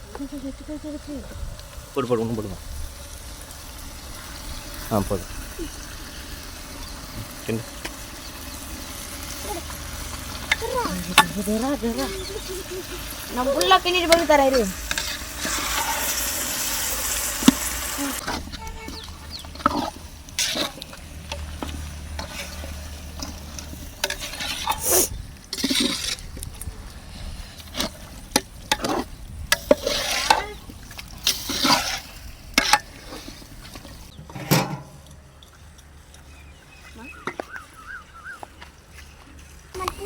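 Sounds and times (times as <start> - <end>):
food sizzling in oil: 1.5 - 26.3, 27.7 - 34.1
utensil stirring in a pot: 6.3 - 26.6, 27.5 - 34.2.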